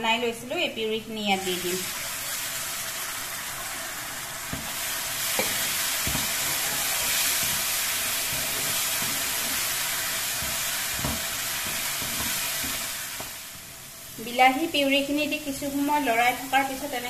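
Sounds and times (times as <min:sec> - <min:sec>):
food sizzling in hot oil: 0:00.0 - 0:17.0
spatula stirring: 0:05.3 - 0:13.4.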